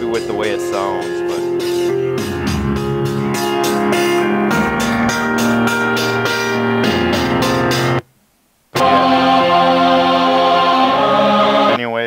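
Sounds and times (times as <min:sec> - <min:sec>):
drum beat: 0:00.0 - 0:07.9
sustained keyboard chords: 0:00.0 - 0:08.0, 0:08.8 - 0:11.8.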